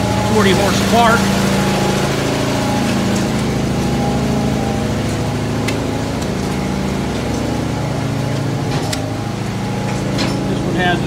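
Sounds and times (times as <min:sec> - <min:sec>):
gas engines rumbling: 0:00.0 - 0:11.0.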